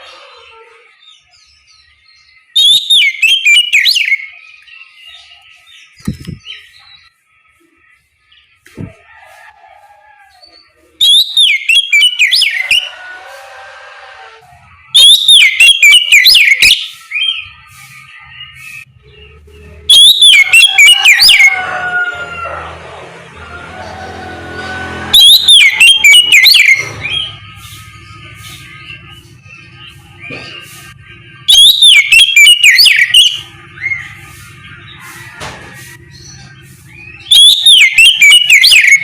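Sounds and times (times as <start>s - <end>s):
bird twittering: 1.0s - 7.6s, 10.5s - 13.0s, 14.6s - 21.6s, 25.1s - 35.3s, 35.9s - 39.0s
bird singing whistled phrases: 2.3s - 6.8s, 11.0s - 12.9s, 15.0s - 21.6s, 25.1s - 27.9s, 31.5s - 34.2s, 37.0s - 39.0s.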